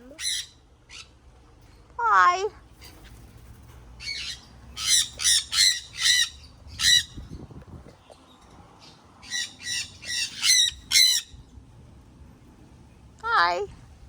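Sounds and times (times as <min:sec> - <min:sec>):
parrots squawking: 0:00.0 - 0:01.2, 0:04.0 - 0:07.3, 0:08.8 - 0:11.4.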